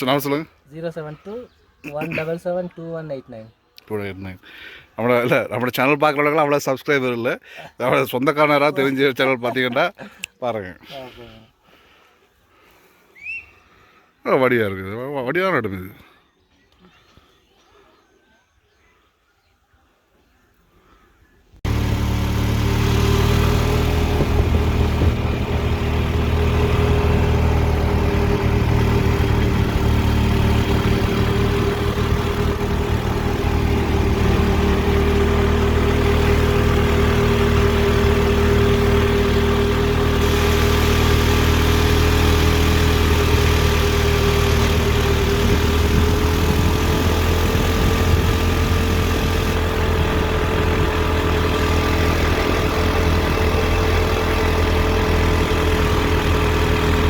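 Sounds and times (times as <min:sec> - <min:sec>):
vehicle engine running: 0:21.6 - 0:57.0.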